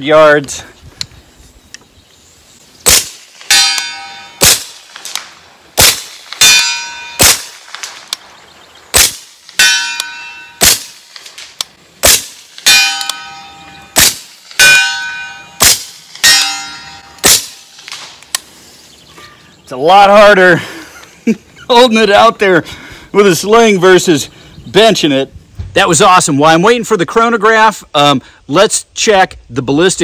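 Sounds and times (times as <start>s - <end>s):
pistol shots: 2.8s - 8.3s, 8.9s - 18.2s
bullet clanging on steel target: 3.5s - 4.5s, 9.6s - 10.9s, 12.7s - 18.0s.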